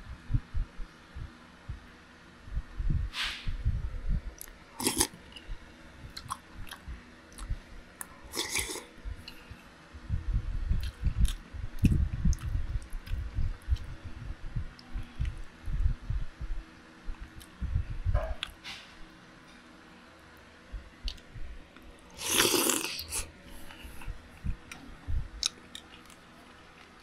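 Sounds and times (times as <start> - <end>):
person chewing wetly: 4.4 - 5.4, 6.1 - 9.4, 10.8 - 13.9, 21.1 - 21.3, 22.2 - 23.3.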